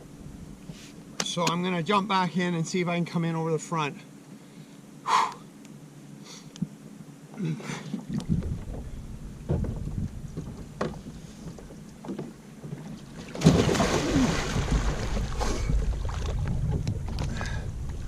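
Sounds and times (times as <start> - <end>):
churning water: 7.4 - 18.0
wind on microphone: 8.1 - 11.2, 14.0 - 18.0
small knocks: 8.2 - 13.0
person splashing into water: 13.2 - 16.4.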